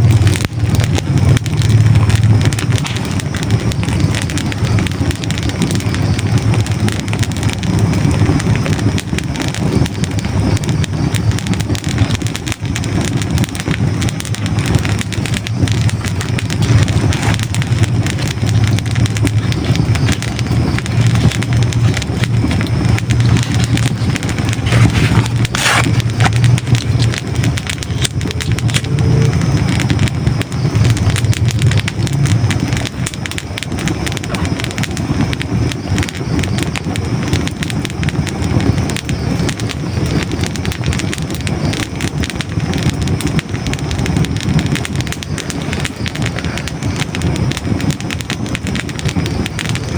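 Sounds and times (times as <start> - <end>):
fire crackling and popping: 0.0 - 49.9
low rumble of flames: 0.0 - 49.9
sharp crack of burning wood: 0.0 - 49.9.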